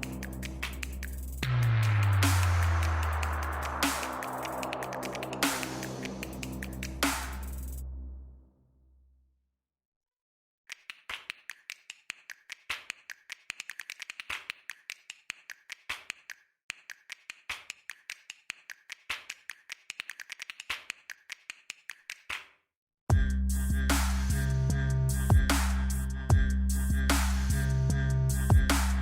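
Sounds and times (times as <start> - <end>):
loud music with heavy beat: 0.0 - 7.8, 23.1 - 29.0.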